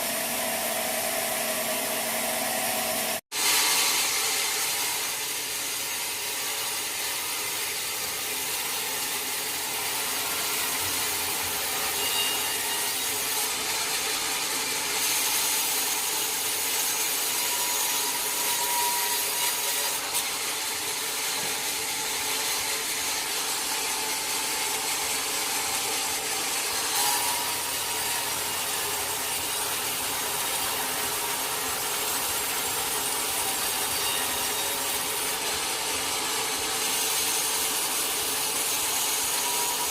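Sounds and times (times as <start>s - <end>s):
saw blade cutting log: 0.0s - 39.9s.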